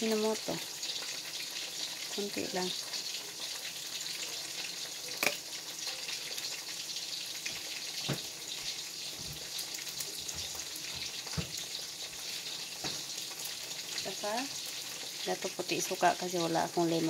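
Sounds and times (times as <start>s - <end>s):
food frying in oil: 0.0s - 17.0s.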